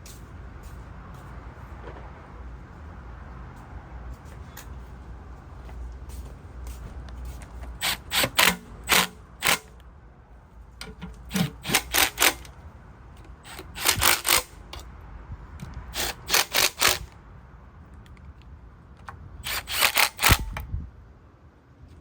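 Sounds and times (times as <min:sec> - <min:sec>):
ratchet clicking: 0:07.8 - 0:09.8, 0:10.9 - 0:12.6, 0:13.2 - 0:14.9, 0:15.9 - 0:17.2, 0:19.4 - 0:20.6.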